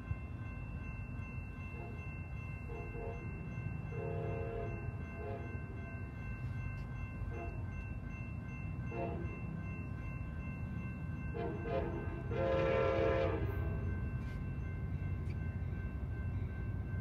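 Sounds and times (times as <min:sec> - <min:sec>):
low train rumble: 0:00.0 - 0:17.0
faint train horn blasts: 0:02.7 - 0:03.3, 0:03.9 - 0:05.6, 0:07.3 - 0:07.6, 0:08.9 - 0:09.4, 0:11.3 - 0:14.4.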